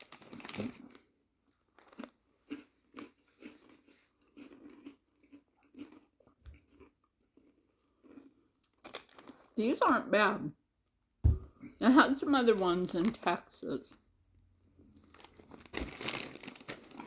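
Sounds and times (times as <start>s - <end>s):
person chewing crunchy snack: 0.0s - 9.6s.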